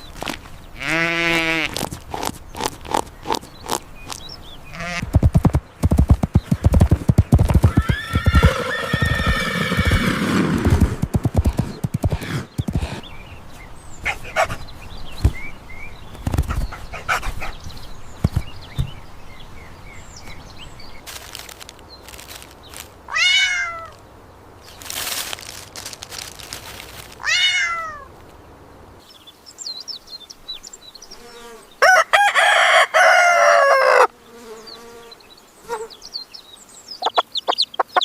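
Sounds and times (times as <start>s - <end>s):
horse hooves clip-clopping: 5.0s - 13.0s
horse whinny: 7.6s - 10.6s.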